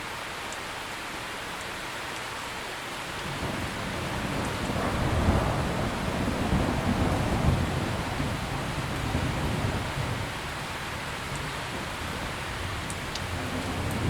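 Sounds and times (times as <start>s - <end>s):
steady rain: 0.0s - 14.0s
rolling thunder: 3.2s - 14.0s.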